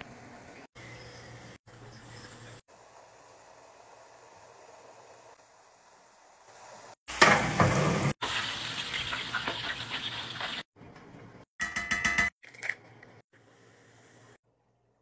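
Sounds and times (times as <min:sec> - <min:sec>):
hot oil sizzling and crackling: 0:02.2 - 0:10.7.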